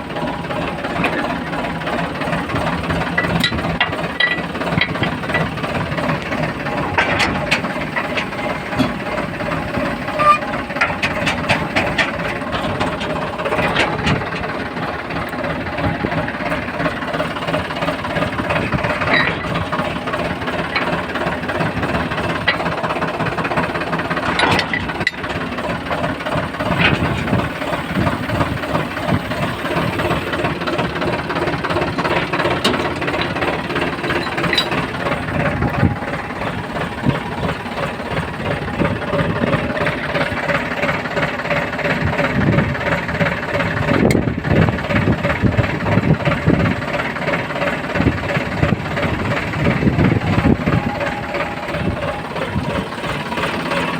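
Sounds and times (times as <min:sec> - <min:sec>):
diesel engines clattering: 0:00.0 - 0:53.9
metallic knocks and rattles: 0:00.9 - 0:40.6.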